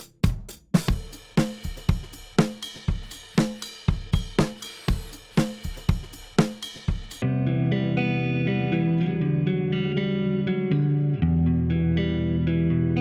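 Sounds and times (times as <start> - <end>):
drum beat: 0.0 - 7.2.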